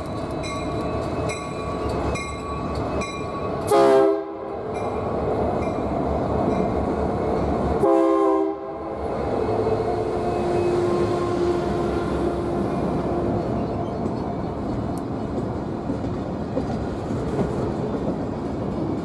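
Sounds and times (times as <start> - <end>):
crossing bell ringing: 0.0 - 3.7
passing train rumble: 0.0 - 19.0
train horn blasts: 3.6 - 4.5, 7.8 - 13.6.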